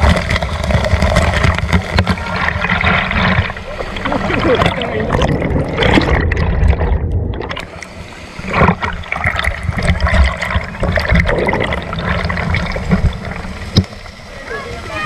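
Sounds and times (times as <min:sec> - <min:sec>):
river water sloshing and splashing: 0:00.0 - 0:15.0
low rumble: 0:02.4 - 0:07.8.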